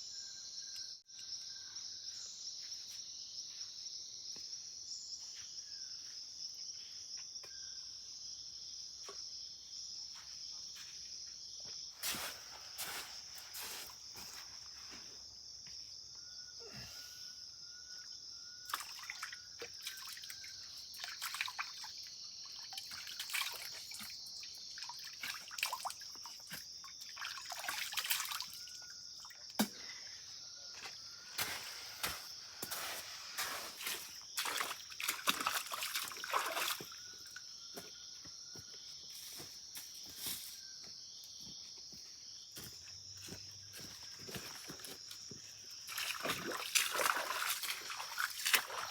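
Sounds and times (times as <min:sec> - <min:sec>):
water sloshing and dripping: 0:18.6 - 0:29.9, 0:33.4 - 0:37.5, 0:44.3 - 0:48.9.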